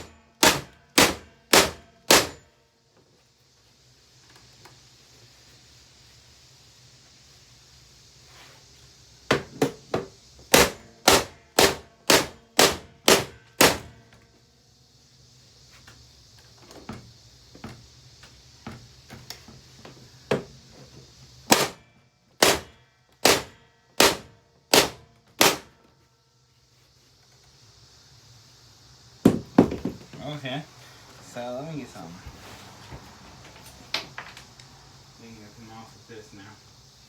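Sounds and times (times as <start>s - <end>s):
hammer striking vacuum cleaner: 0.0s - 2.5s, 9.3s - 14.0s, 21.5s - 21.8s, 22.4s - 25.8s.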